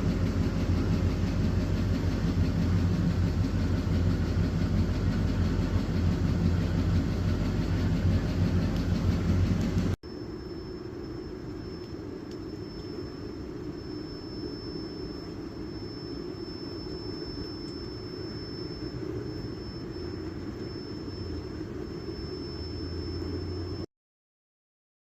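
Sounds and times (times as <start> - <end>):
vehicle engine rumble: 0.0 - 10.0
high whine: 0.0 - 23.9.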